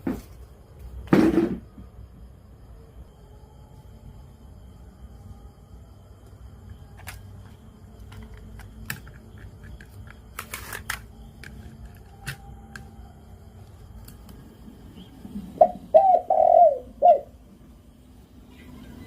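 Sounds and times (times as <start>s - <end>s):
faint low hum: 0.0s - 19.0s
rattling of radio parts: 7.0s - 12.4s.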